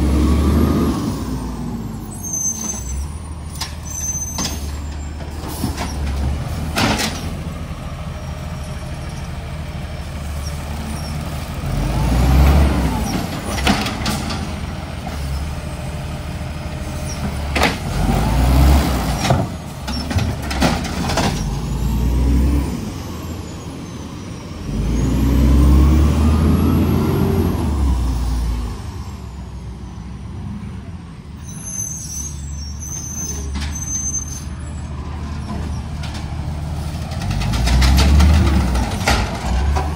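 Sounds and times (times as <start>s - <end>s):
garbage truck engine revving: 0.0s - 2.0s, 10.5s - 29.0s, 35.6s - 39.9s.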